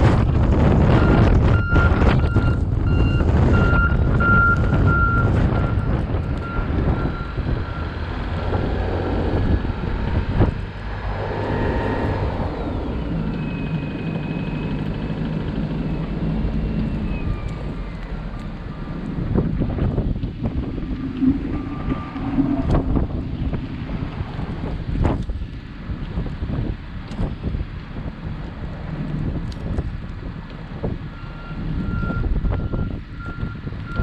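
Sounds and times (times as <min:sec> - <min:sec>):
vehicle rumble: 0:00.0 - 0:34.0
reversing beeps: 0:01.0 - 0:08.0, 0:31.1 - 0:34.0.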